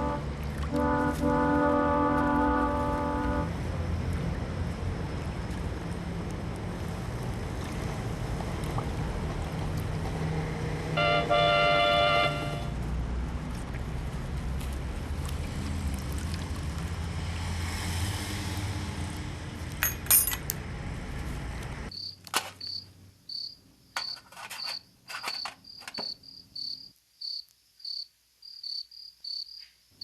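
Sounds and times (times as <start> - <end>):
crickets chirping: 3.7 - 7.1, 21.9 - 30.0.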